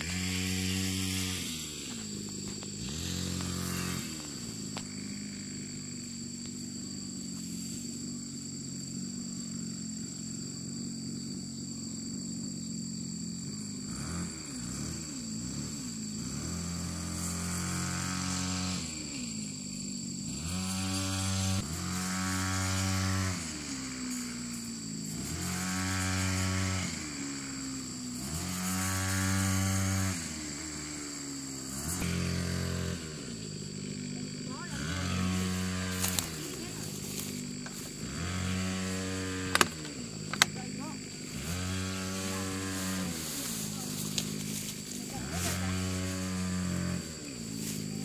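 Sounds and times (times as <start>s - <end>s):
small engine running: 0.0s - 48.0s.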